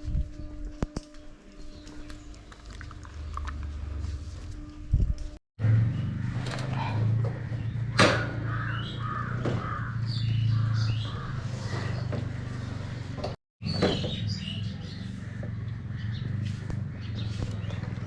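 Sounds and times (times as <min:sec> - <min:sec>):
birds calling: 0:05.7 - 0:18.0.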